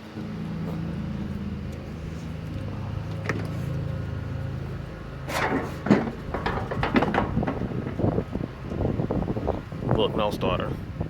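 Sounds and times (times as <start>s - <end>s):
riding lawn mower engine humming: 0.0s - 10.1s
sharp clunks and rattles: 0.1s - 9.8s.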